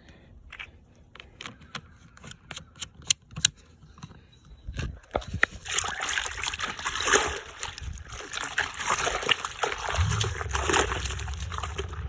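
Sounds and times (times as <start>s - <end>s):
water splashing over car: 8.4s - 12.0s.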